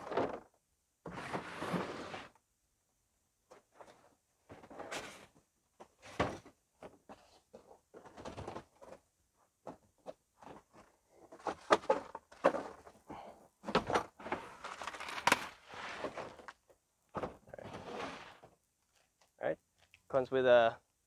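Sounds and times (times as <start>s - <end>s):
packaging rustling: 14.5s - 15.6s.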